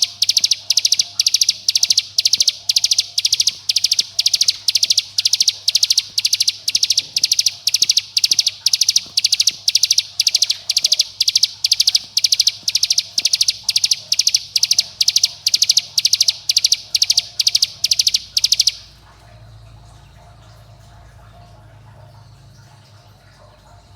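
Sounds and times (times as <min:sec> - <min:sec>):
bird trill call: 0:00.0 - 0:18.8.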